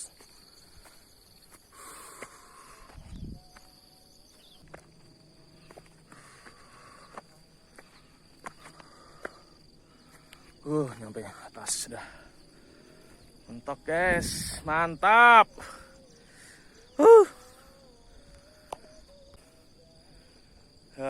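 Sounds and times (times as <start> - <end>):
insect trill: 0.0 - 21.0
footsteps and scuffs climbing: 0.1 - 11.0.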